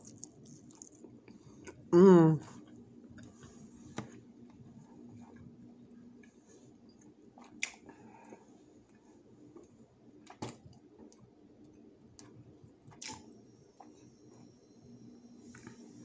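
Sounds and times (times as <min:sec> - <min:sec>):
person chewing food: 0:00.0 - 0:01.9, 0:07.0 - 0:09.8.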